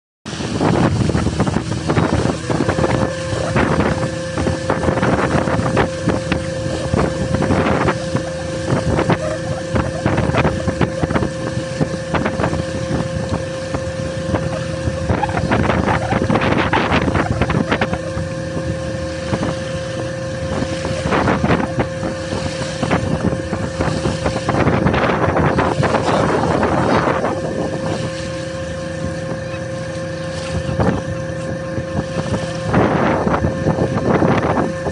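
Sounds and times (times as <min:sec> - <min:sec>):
boat motor running: 0:00.3 - 0:34.9
wind buffeting microphone: 0:00.3 - 0:34.9.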